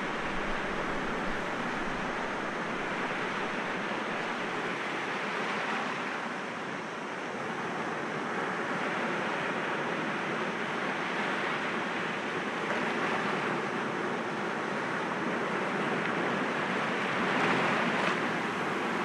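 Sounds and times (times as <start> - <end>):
waves breaking against rocks: 0.0 - 4.5.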